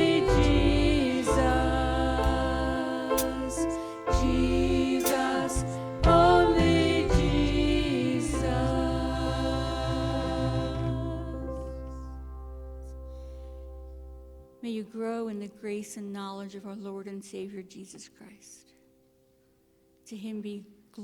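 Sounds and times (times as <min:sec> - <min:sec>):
voices singing a hymn: 0:00.0 - 0:12.0.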